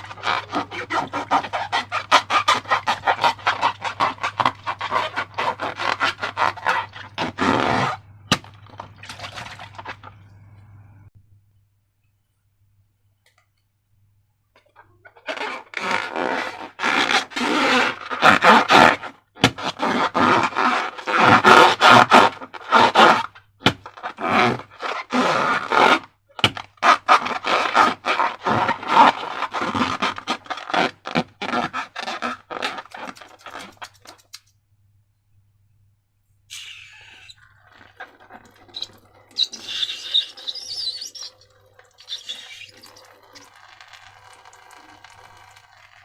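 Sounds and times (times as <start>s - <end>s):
slime crackling and scraping: 0.0s - 10.0s, 15.1s - 34.4s.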